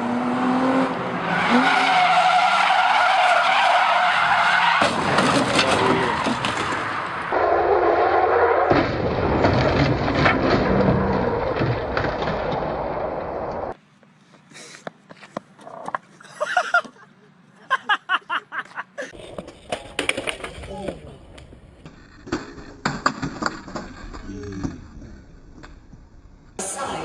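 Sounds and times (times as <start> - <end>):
racing car engines: 0.0 - 13.8
tyres skidding: 0.0 - 17.4.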